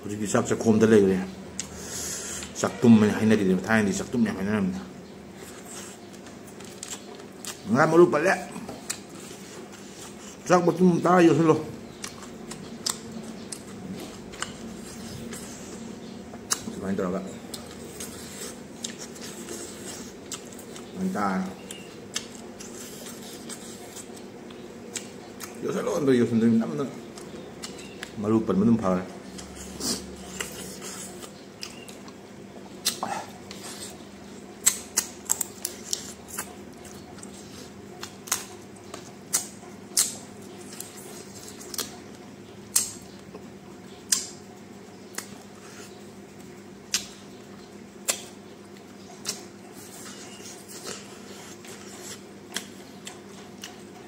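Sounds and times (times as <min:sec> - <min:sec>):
faint steady hum: 0:00.0 - 0:54.0
chewing and mouth smacking: 0:05.4 - 0:07.7, 0:08.5 - 0:10.5, 0:11.9 - 0:16.8, 0:17.4 - 0:21.0, 0:21.6 - 0:25.8, 0:27.1 - 0:28.2, 0:29.2 - 0:54.0.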